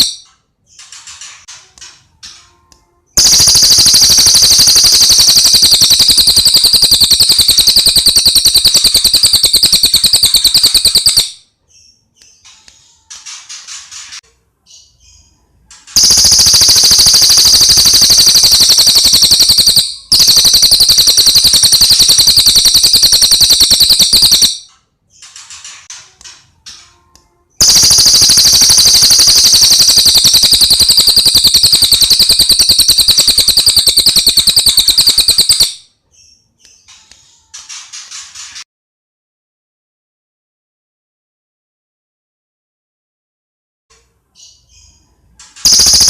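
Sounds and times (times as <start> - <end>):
bird trilling: 0.0 - 0.2, 3.2 - 11.4, 16.0 - 24.6, 27.6 - 35.8
bird chirps: 0.0 - 1.0, 3.1 - 13.1, 14.6 - 25.4, 27.6 - 37.5.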